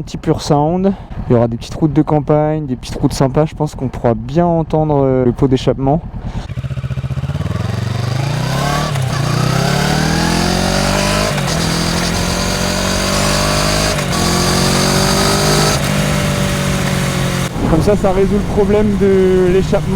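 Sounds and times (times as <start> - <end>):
motorcycle engine accelerating: 5.9 - 19.9.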